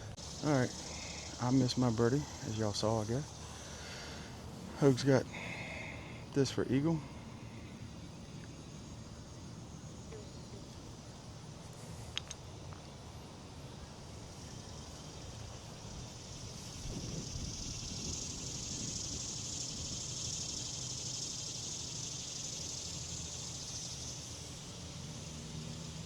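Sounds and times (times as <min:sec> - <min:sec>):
steady high hiss: 0:00.0 - 0:26.0
wind rumbling on microphone: 0:14.8 - 0:20.9.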